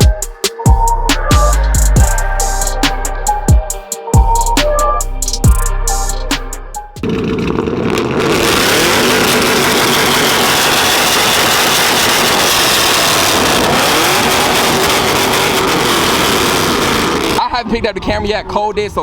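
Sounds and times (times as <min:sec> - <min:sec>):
loud vehicle engine running: 0:05.3 - 0:17.5
heavy steady rushing noise: 0:07.0 - 0:19.0.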